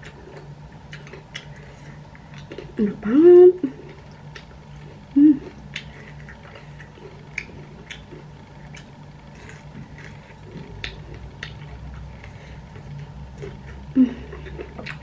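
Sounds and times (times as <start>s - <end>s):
person chewing: 0.0s - 15.0s
person humming: 2.8s - 3.9s, 5.1s - 5.6s, 13.9s - 14.7s.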